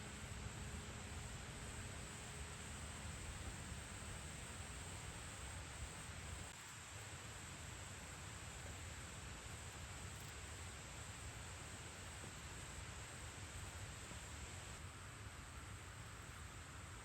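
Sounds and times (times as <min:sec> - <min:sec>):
constant high-pitched tone: 0:00.0 - 0:06.6.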